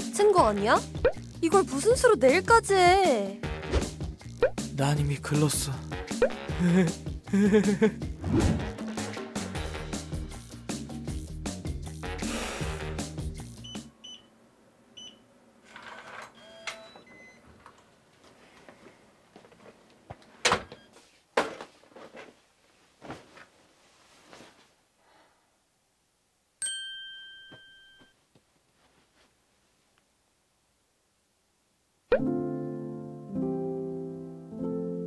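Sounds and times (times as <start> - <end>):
background music: 0.0 - 13.9, 32.1 - 35.0
phone notification chime: 26.6 - 28.1.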